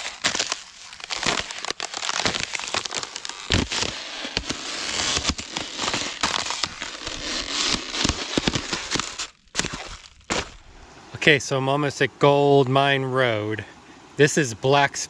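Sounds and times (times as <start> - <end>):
footsteps crunching on trail: 0.0 - 11.2.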